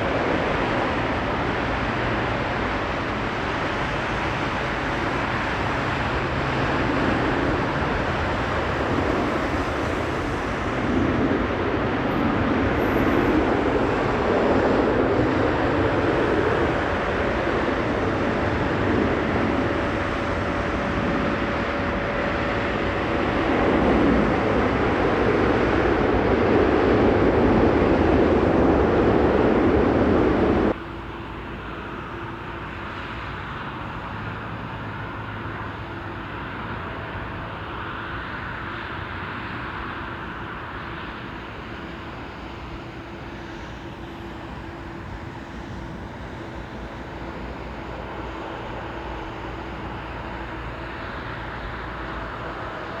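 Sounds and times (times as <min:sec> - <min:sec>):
distant jet rumble: 0:00.0 - 0:32.7
jet airliner roaring overhead: 0:00.0 - 0:53.0.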